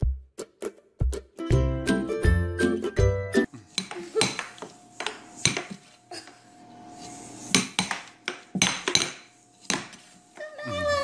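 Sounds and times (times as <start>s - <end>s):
air hockey puck clacking: 7.6s - 10.0s.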